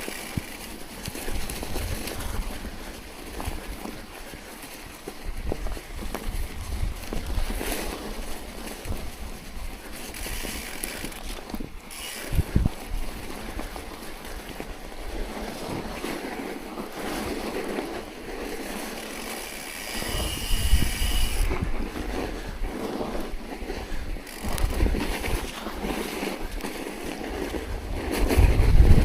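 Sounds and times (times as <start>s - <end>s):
wind buffeting microphone: 5.1s - 15.9s, 19.9s - 26.6s, 27.3s - 29.0s.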